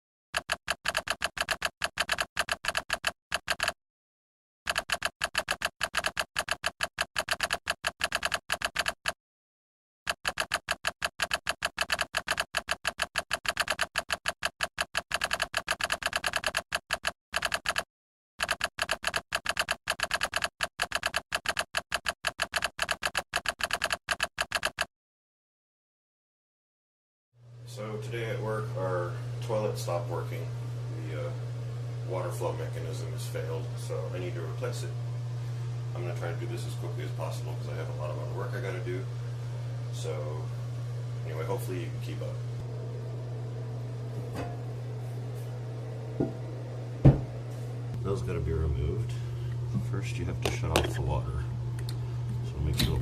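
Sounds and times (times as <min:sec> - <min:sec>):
typing sound effect: 0:00.4 - 0:03.8, 0:04.7 - 0:09.2, 0:10.1 - 0:24.9.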